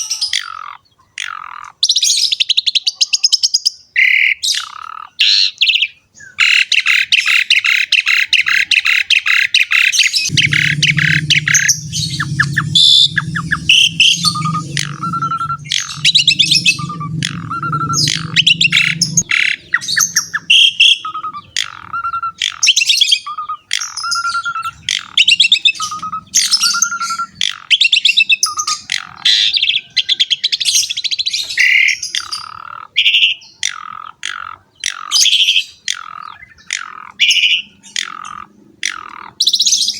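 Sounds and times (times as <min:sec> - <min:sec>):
starling singing: 0:10.1 - 0:28.9
low buzzing: 0:10.3 - 0:21.6.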